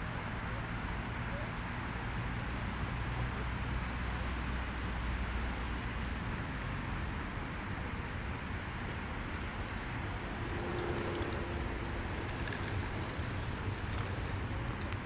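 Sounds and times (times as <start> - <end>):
low rumble: 9.7 - 14.6.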